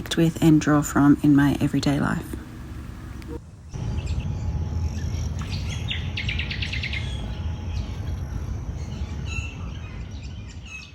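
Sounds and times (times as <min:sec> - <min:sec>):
steady low rumble: 0:00.0 - 0:10.9
birds chirping and trilling: 0:02.9 - 0:10.9.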